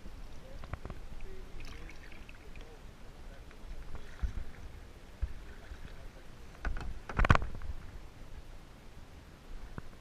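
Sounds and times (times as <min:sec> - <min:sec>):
paddle in water: 0:00.0 - 0:10.0.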